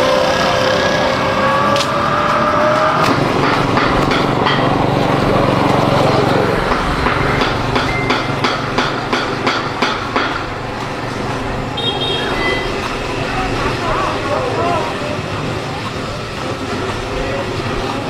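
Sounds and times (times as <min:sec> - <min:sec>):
small engine running: 0:00.0 - 0:08.3.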